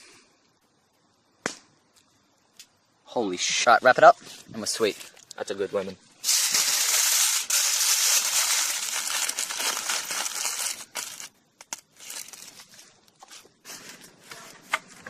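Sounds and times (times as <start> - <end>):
aluminium foil crinkling: 6.2 - 14.6.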